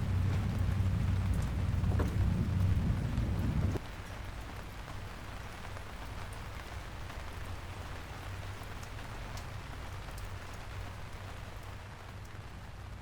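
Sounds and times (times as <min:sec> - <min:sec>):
low hum: 0:00.0 - 0:03.8
steady rain falling: 0:00.0 - 0:13.0.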